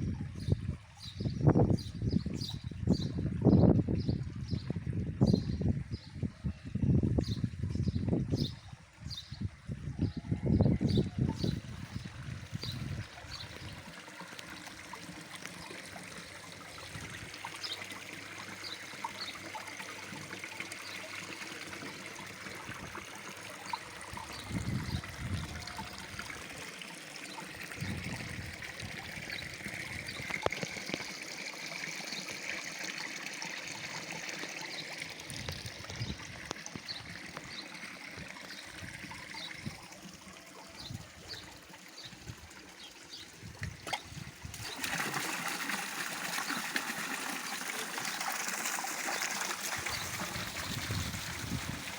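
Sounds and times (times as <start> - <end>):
water trickling into pond: 0.0 - 51.9.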